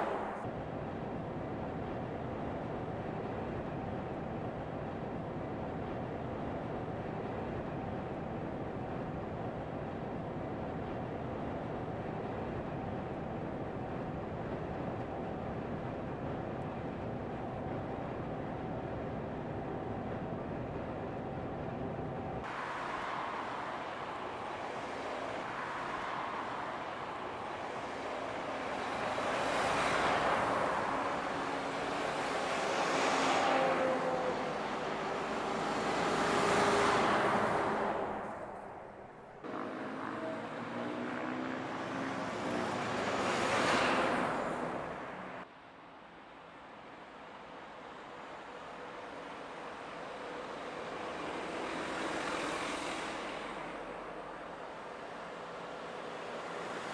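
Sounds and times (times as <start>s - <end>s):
vehicles passing at speed: 0.0s - 0.5s, 21.4s - 56.9s.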